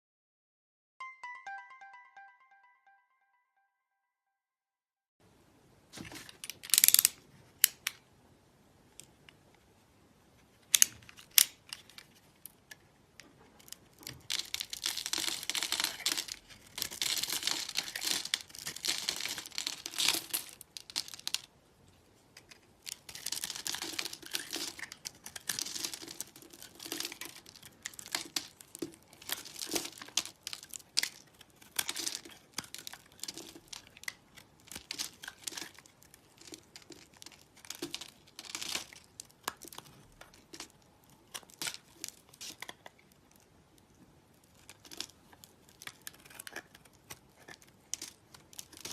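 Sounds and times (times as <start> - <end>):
dry soap crunching: 10.8 - 21.6, 22.2 - 48.9.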